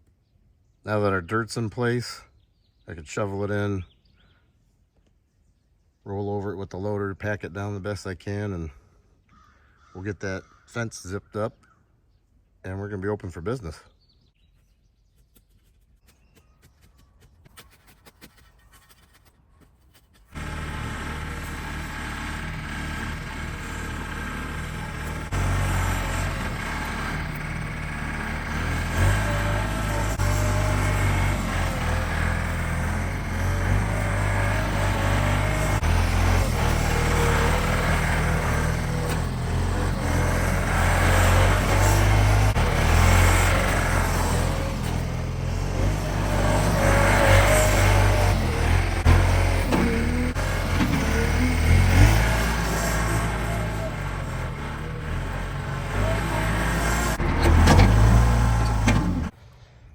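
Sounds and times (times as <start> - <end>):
tractor engine running: 20.3 - 59.6.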